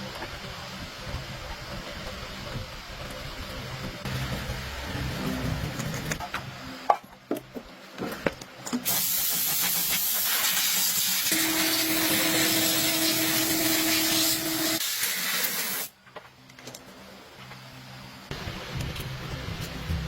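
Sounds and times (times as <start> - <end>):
loud spraying hiss: 8.9 - 15.9.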